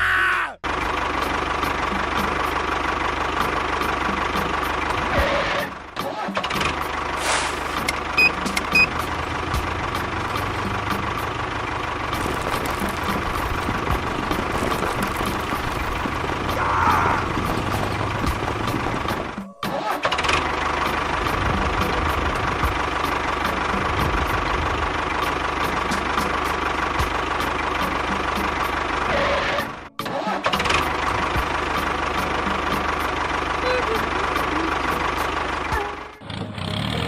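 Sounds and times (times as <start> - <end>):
small engine running with clicking: 6.3 - 19.4.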